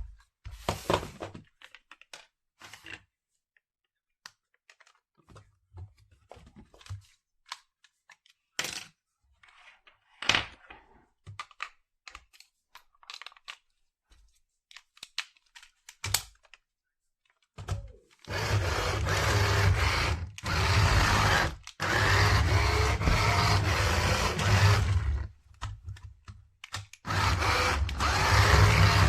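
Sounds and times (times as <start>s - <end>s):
small electric motor whirring: 18.3s - 25.3s, 27.0s - 29.0s.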